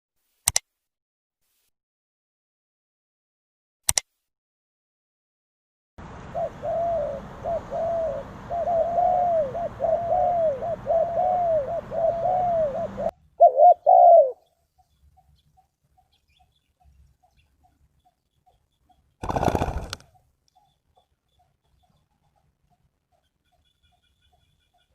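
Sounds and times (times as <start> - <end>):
dove cooing: 6.3 - 14.5, 19.2 - 20.2.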